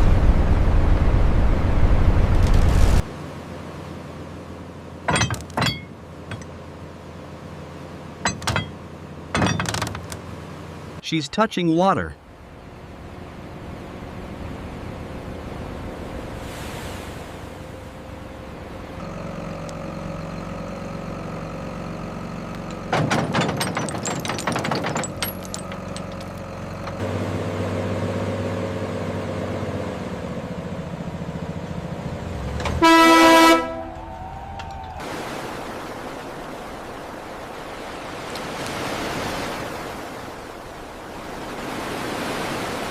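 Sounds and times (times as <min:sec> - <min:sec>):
surf-like noise: 0:10.7 - 0:18.8, 0:35.0 - 0:42.9
heavy machinery droning: 0:17.4 - 0:35.2
horn blast: 0:32.6 - 0:34.4.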